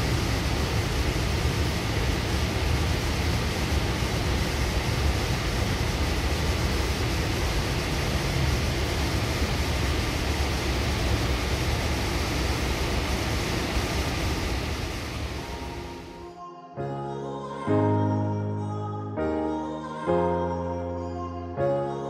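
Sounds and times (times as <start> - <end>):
train interior rumble and hiss: 0.0 - 16.2.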